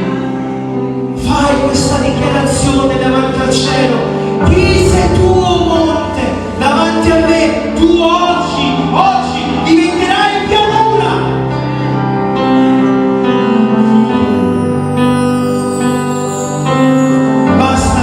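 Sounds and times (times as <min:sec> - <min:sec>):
sustained instrumental backing: 0:00.0 - 0:18.0
worship singing: 0:01.2 - 0:11.4.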